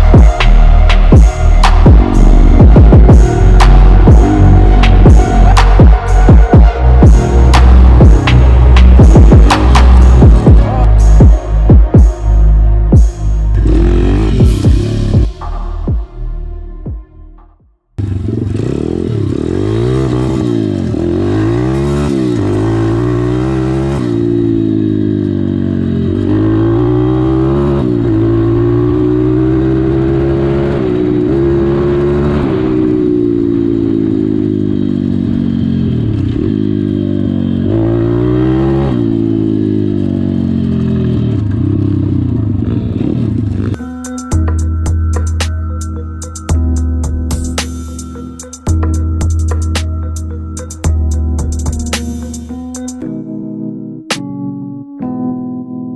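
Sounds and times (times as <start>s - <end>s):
pit bike engine revving: 13.5s - 15.2s, 18.0s - 43.9s.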